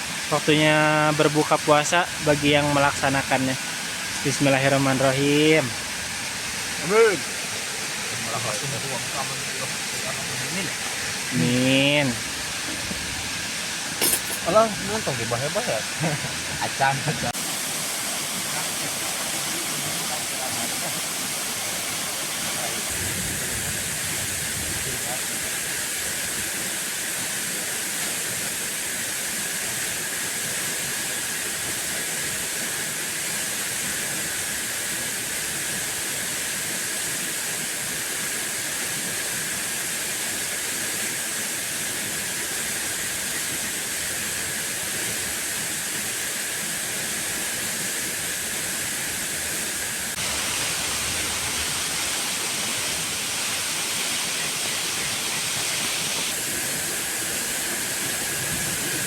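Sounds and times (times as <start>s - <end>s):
loud hiss: 0.0s - 59.0s
waterfall rushing: 0.0s - 59.0s.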